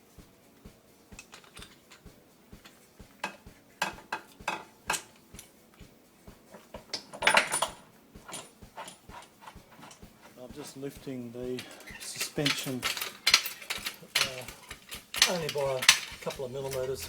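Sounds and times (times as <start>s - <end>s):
metal tools clinking and clanking: 1.1s - 17.0s.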